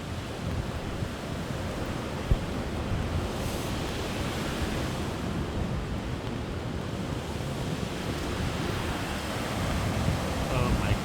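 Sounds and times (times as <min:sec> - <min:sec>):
wind buffeting microphone: 0:00.2 - 0:11.0.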